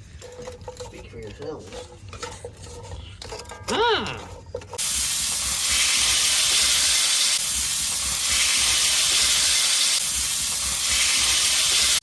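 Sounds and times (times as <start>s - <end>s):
food sizzling in a skillet: 4.8s - 12.0s.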